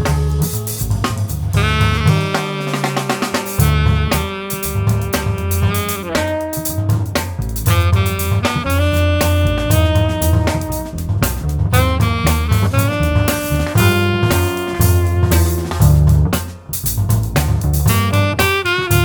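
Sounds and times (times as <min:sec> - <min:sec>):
bass: 0:00.0 - 0:19.0
drum kit with cymbals: 0:00.0 - 0:19.0
saxophone long notes: 0:01.4 - 0:11.0, 0:11.7 - 0:15.9, 0:17.9 - 0:19.0.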